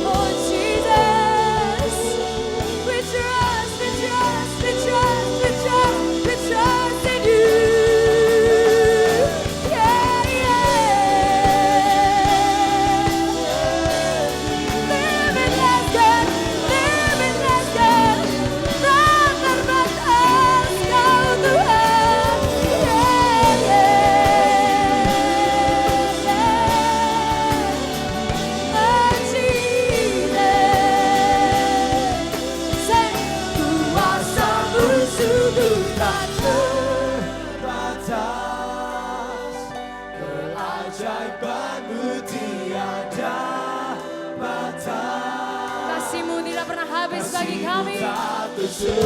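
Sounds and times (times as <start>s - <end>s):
choir singing held notes: 0.0s - 49.0s
worship band playing: 0.0s - 49.0s.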